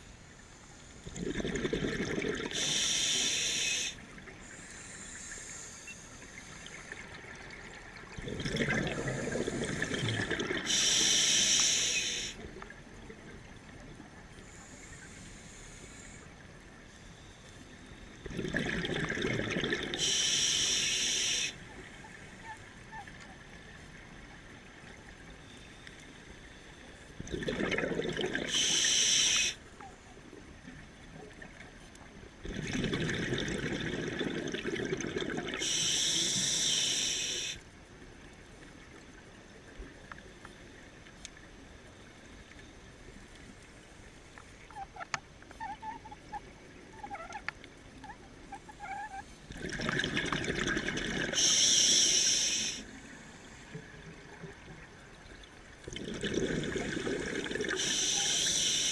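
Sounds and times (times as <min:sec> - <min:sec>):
exhaled bubbles rushing: 0:01.0 - 0:02.5, 0:07.3 - 0:10.8, 0:18.2 - 0:20.0, 0:27.2 - 0:28.6, 0:32.4 - 0:35.6, 0:49.5 - 0:51.4, 0:55.9 - 0:57.9
regulator inhalation hiss: 0:02.5 - 0:06.5, 0:09.2 - 0:12.4, 0:14.4 - 0:16.3, 0:20.0 - 0:21.6, 0:28.5 - 0:29.6, 0:35.6 - 0:37.6, 0:51.3 - 0:53.7, 0:57.7 - 0:58.9.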